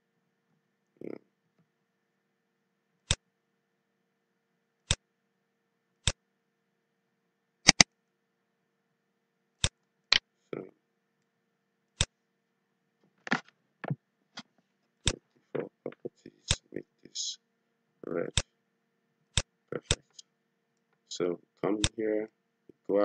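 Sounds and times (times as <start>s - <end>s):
computer mouse button clicks: 7.7s - 7.9s.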